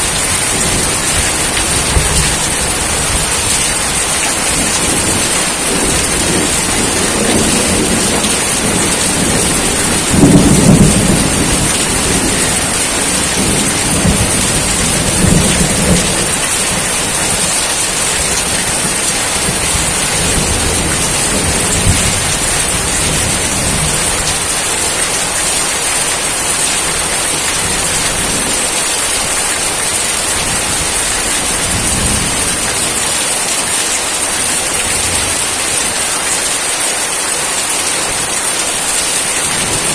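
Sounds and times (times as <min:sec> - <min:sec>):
thunder rumbling: 0:00.0 - 0:36.4
steady rain: 0:00.0 - 0:39.9.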